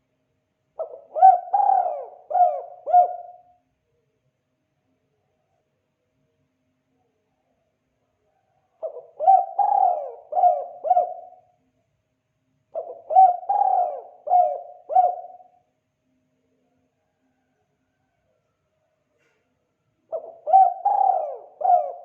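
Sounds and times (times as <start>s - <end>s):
dove cooing: 0.8s - 3.5s, 8.8s - 11.5s, 12.7s - 15.6s, 20.1s - 22.0s.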